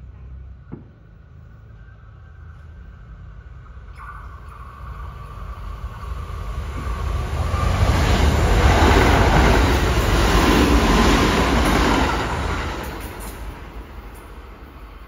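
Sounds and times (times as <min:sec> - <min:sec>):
train passing at speed: 0:04.6 - 0:15.0.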